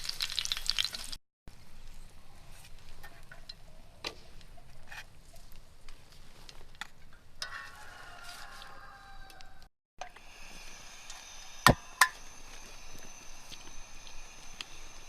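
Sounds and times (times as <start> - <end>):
faint sizzle: 10.0 - 15.0.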